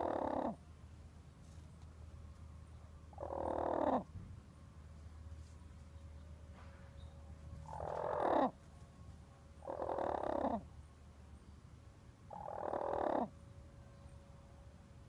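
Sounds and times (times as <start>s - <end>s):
bird giving raspy calls: 0.0s - 0.6s, 3.1s - 4.1s, 7.6s - 8.6s, 9.6s - 10.7s, 12.3s - 13.3s.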